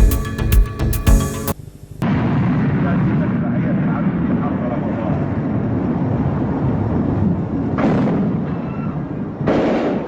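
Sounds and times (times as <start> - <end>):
continuous loud roar: 2.0 - 10.0
gunshot bangs: 9.4 - 10.0.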